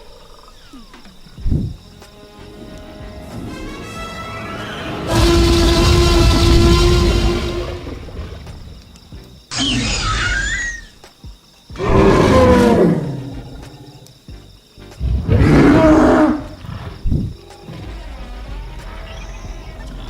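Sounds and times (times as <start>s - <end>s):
high gliding screech: 2.4s - 8.6s
deep dinosaur roars: 4.3s - 8.8s, 11.8s - 14.1s, 15.0s - 16.9s.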